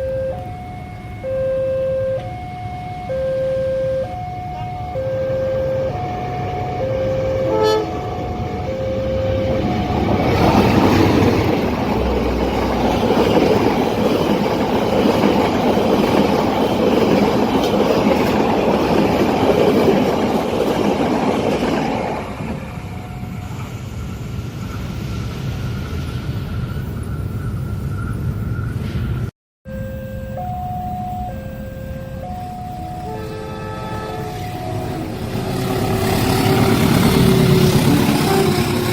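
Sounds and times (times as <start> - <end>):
two-tone crossing alarm: 0.0 - 18.3, 29.6 - 38.9
train passing at speed: 4.0 - 29.3, 32.3 - 38.9.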